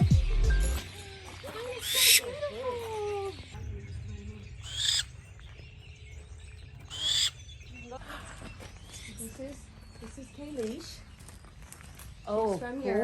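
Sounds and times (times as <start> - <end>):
bird of prey screeching: 0.9 - 2.4, 4.6 - 5.3, 6.8 - 7.5.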